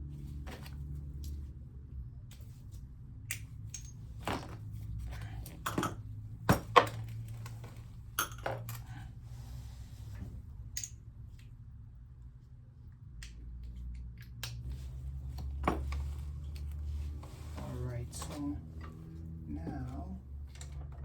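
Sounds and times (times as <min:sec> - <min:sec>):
metal tools clinking: 0:05.2 - 0:07.6, 0:08.2 - 0:09.0.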